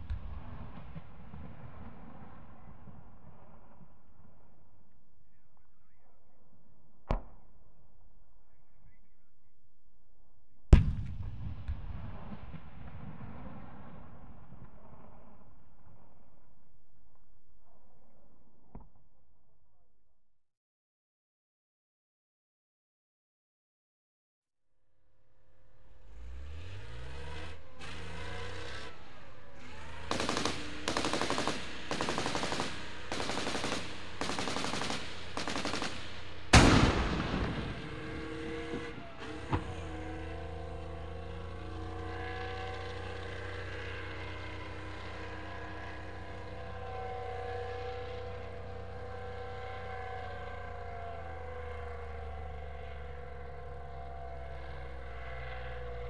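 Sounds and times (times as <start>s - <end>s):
tank engine running: 0.0s - 7.0s, 25.2s - 56.0s
cannon shot: 10.7s - 16.1s, 30.0s - 39.8s
engine whine: 24.9s - 56.0s
machine-gun fire: 30.0s - 38.9s
small bang: 36.5s - 39.8s.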